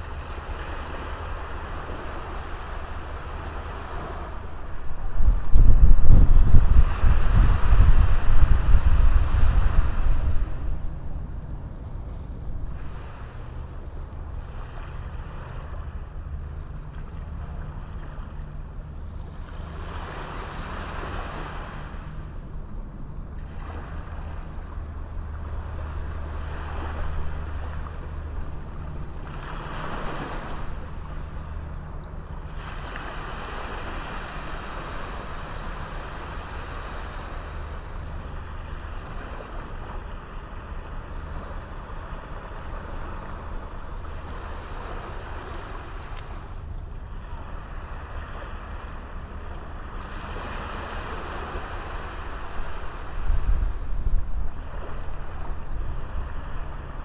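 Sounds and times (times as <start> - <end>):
small waves breaking on beach: 0.0 - 11.3, 12.1 - 22.6, 23.4 - 57.0.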